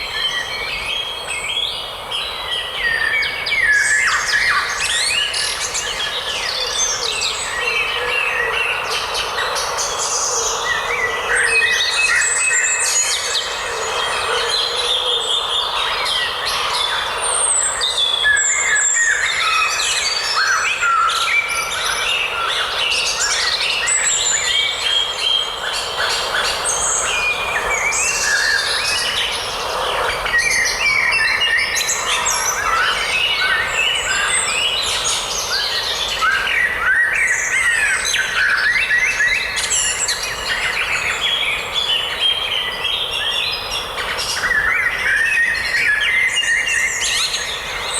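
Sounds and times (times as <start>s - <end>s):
small birds singing and chirping: 0.0s - 47.9s.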